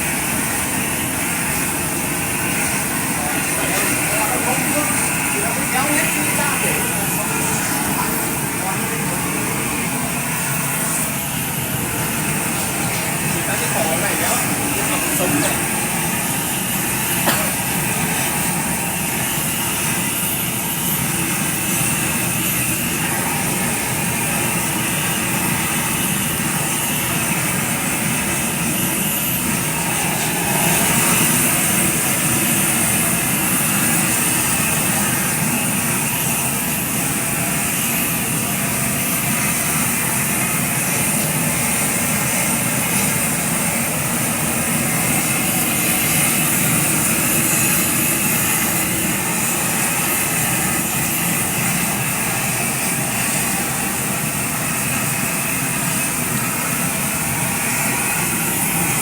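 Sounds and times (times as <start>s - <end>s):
engine running: 26.4s - 54.1s.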